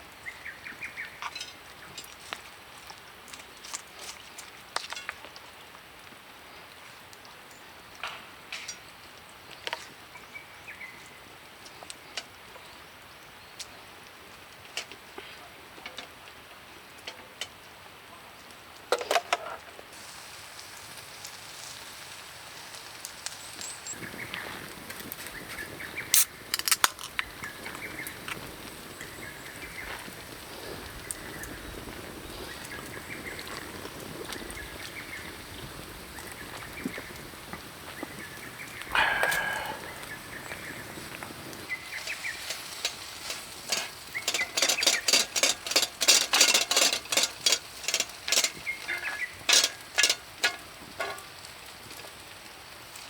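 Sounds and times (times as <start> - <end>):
small birds chirping: 0.2 - 2.2, 23.4 - 26.5, 27.2 - 50.6
food sizzling on a griddle: 19.9 - 53.0.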